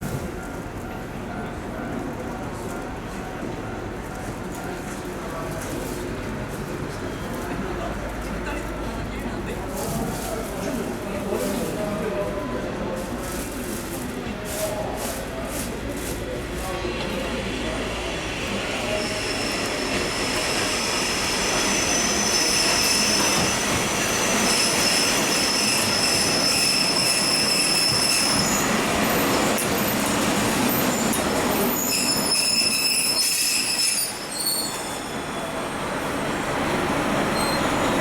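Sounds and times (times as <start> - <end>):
train wheels squealing on rails: 17.1 - 36.4, 37.0 - 38.0.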